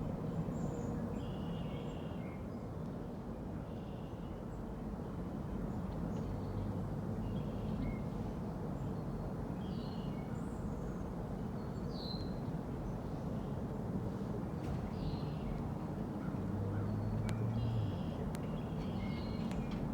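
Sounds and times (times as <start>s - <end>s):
low outdoor rumble: 0.0s - 1.2s.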